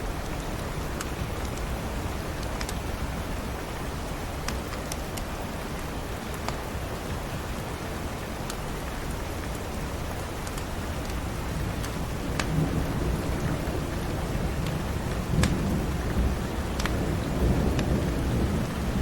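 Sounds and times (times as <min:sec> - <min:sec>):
wood fire crackling: 0:00.0 - 0:18.8
steady rain: 0:00.0 - 0:19.0
low thunder rumble: 0:11.4 - 0:19.0.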